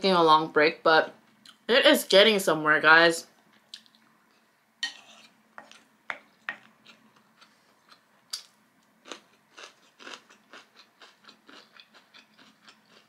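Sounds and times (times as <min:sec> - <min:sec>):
chewing with mouth clicks: 0:06.6 - 0:13.0.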